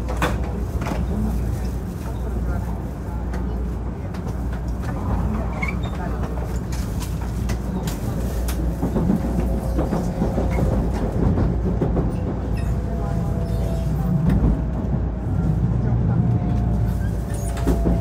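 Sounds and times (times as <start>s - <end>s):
train cabin rumble: 0.0s - 18.0s.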